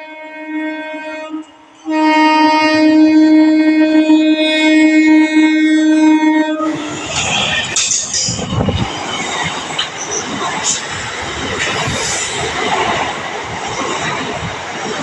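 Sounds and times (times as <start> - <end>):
train wheels on rails: 6.6 - 15.0.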